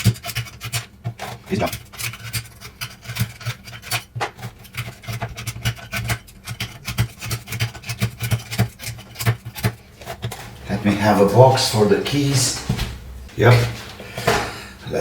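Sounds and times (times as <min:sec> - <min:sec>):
small clicks and scrapes of keyboard parts: 0:00.0 - 0:10.5.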